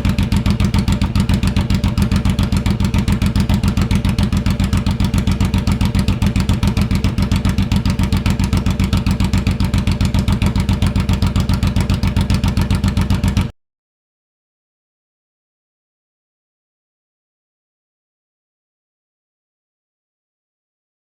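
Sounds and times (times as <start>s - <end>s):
motorcycle engine idling: 0.0s - 13.5s.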